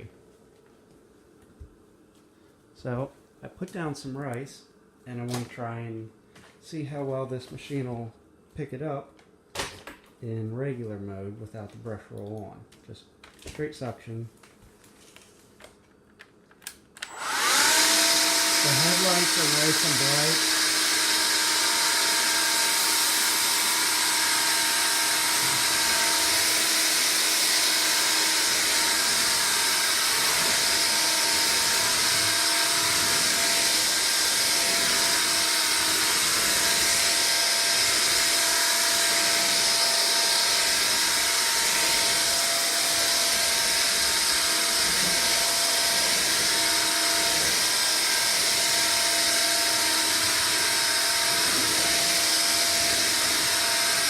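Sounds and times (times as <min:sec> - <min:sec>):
stick vacuum motor whine: 0:16.6 - 0:54.0.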